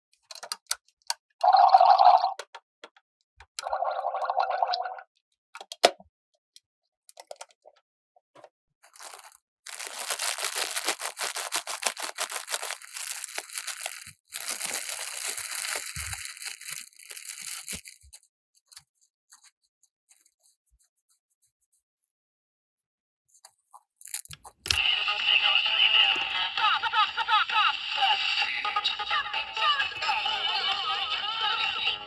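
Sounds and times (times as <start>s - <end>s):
plastic packaging crackling and tearing: 8.9s - 18.1s, 24.0s - 24.8s.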